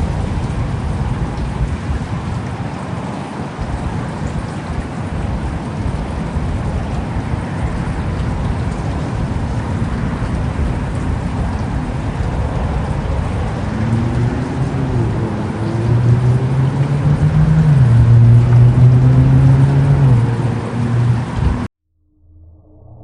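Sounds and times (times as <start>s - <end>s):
heavy rain falling: 0.0s - 21.7s
deep low rumble: 5.2s - 23.0s
low humming tone: 13.6s - 23.0s.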